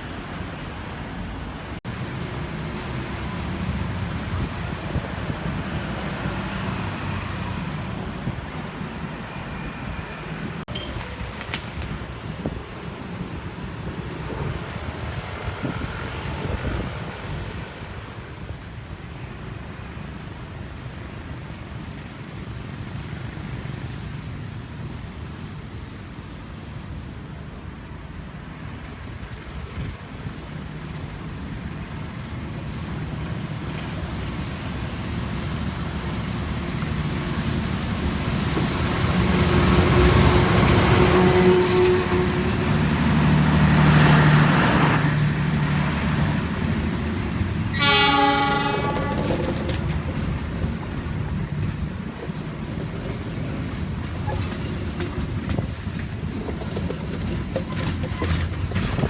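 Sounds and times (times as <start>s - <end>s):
diesel train rumble: 0.0s - 59.0s
street traffic: 0.0s - 59.0s
cars and motorbikes passing: 36.5s - 49.4s.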